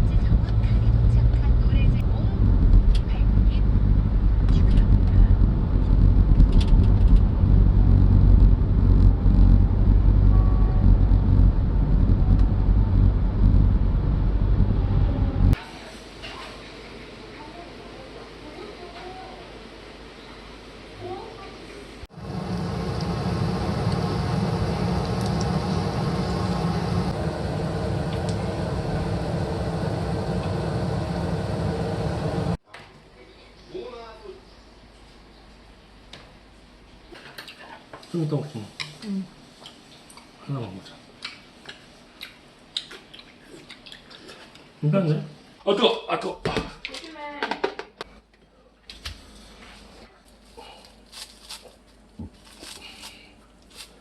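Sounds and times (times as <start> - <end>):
car road rumble: 0.0 - 15.6, 22.1 - 32.6.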